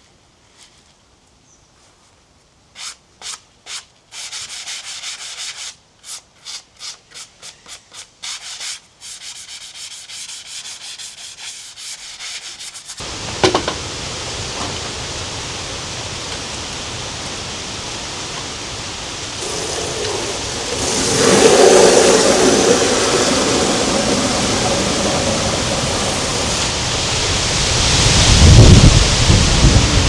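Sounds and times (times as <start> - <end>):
wind: 0.0 - 30.0
rain: 13.0 - 30.0
deep rumble: 19.3 - 27.5.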